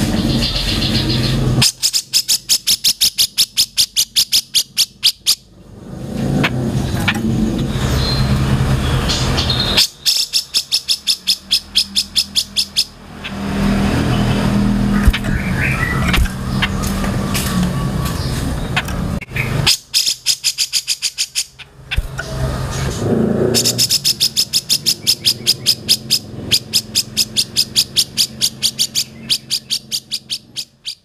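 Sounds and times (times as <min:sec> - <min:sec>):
bird chattering calls: 0:00.0 - 0:05.5, 0:09.0 - 0:22.5, 0:23.5 - 0:31.0
steady low rumble: 0:13.0 - 0:19.3.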